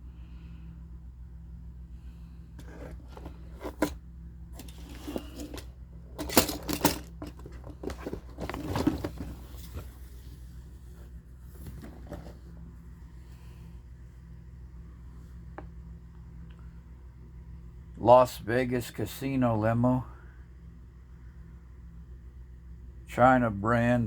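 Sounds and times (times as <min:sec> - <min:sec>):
steady low hum: 0:00.0 - 0:24.0
toy cars clicking and rustling: 0:04.6 - 0:09.2.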